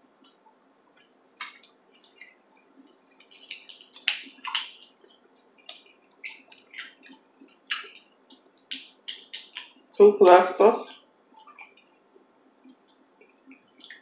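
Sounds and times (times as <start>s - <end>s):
chewing with mouth clicks: 1.0s - 10.0s, 11.4s - 12.0s, 12.6s - 14.0s.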